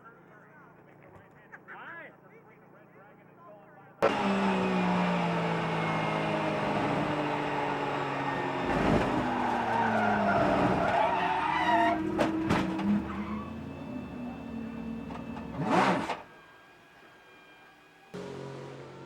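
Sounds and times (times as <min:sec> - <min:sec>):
race car engines: 0:04.0 - 0:19.0
tyres skidding: 0:04.0 - 0:19.0
dull thump: 0:11.9 - 0:13.2.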